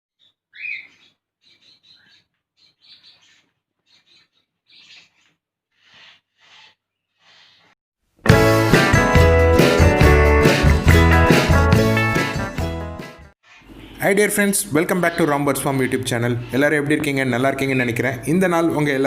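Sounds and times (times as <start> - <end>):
pet birds chirping and squawking: 0.2 - 7.8, 13.5 - 18.2
loud guitar music: 8.2 - 13.3.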